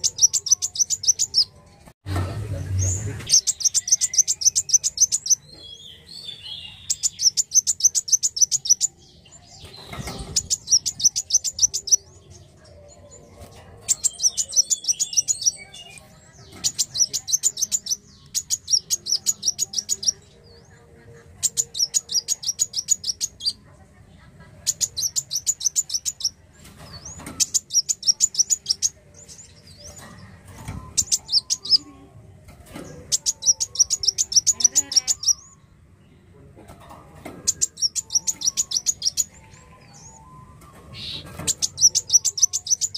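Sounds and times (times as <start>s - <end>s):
sunbird chattering song: 0.0s - 1.5s, 2.7s - 12.5s, 13.8s - 20.7s, 21.4s - 23.6s, 24.6s - 26.4s, 27.0s - 30.0s, 30.9s - 31.9s, 33.1s - 35.6s, 37.5s - 40.3s, 41.0s - 42.9s.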